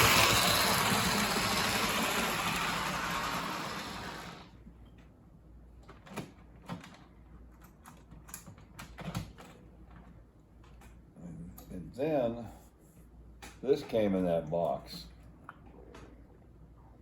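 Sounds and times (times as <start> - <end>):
model train motor whirring: 0.0 - 4.5.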